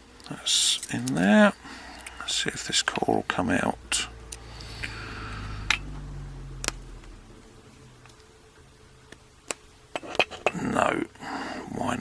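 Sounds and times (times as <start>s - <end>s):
low rumble of handling: 2.4s - 9.3s.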